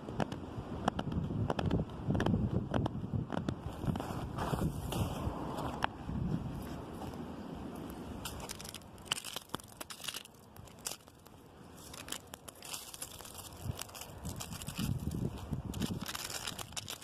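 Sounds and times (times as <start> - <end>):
wind rumble on microphone: 0.0 - 9.2, 11.9 - 17.0
wind gusting through branches: 0.0 - 17.0
twigs and leaves crackling: 6.6 - 17.0.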